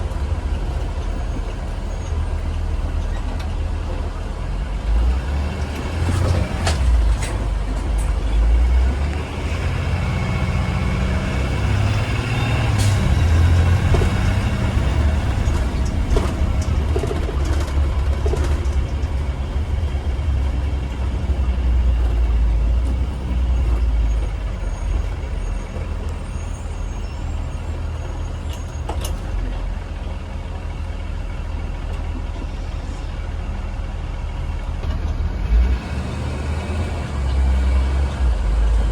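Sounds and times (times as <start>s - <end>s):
bus engine and road rumble: 0.0s - 38.9s
clicks and rattles: 15.2s - 19.4s.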